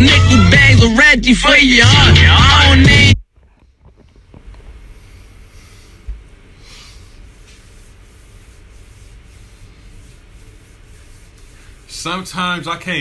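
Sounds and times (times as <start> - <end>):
rubbing and rustling: 3.8 - 13.0.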